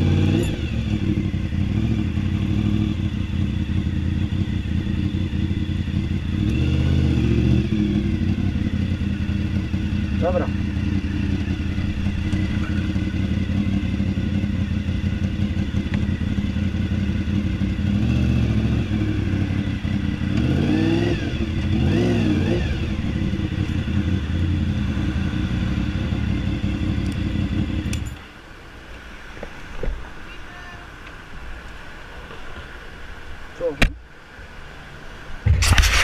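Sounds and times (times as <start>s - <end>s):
motorcycle engine revving: 0.0s - 28.2s, 35.5s - 36.0s.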